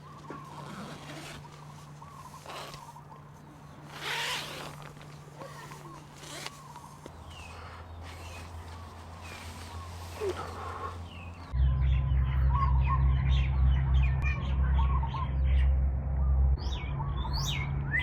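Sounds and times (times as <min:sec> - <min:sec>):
faint chirping calls: 0:00.0 - 0:13.1
zipper pulled: 0:00.1 - 0:03.1, 0:03.8 - 0:10.6.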